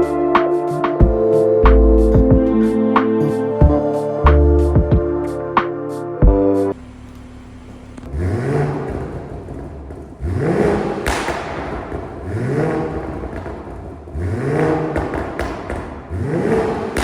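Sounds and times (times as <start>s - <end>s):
car engine revving: 0.0s - 17.0s
exhaust crackles and pops: 6.2s - 17.0s.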